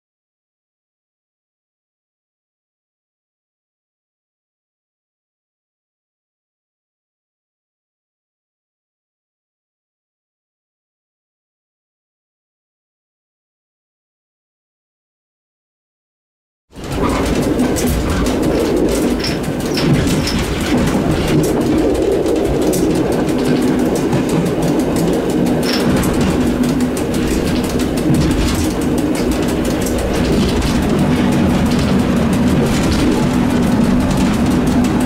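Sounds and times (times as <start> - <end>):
train low humming rumble: 16.8 - 35.0.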